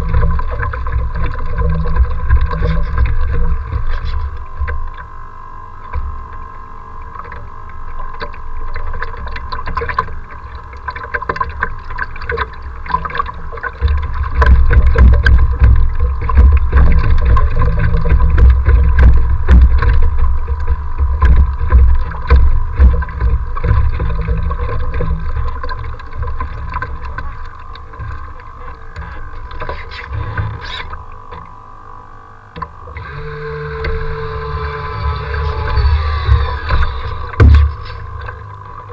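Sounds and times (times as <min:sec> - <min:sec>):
steady thin whine: 0:00.0 - 0:38.9
waves slapping and splashing: 0:07.1 - 0:31.1.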